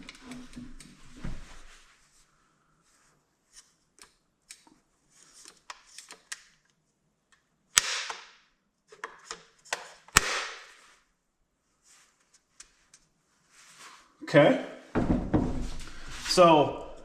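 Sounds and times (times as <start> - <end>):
loud sharp snaps with rattle: 7.8 - 8.4, 10.2 - 10.7.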